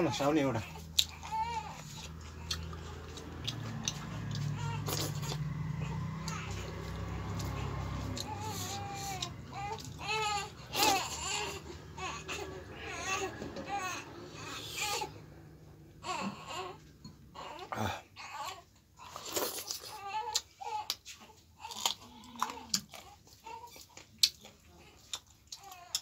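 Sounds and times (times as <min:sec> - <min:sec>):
wet chewing and lip-smacking: 0:00.8 - 0:05.6, 0:19.1 - 0:26.0.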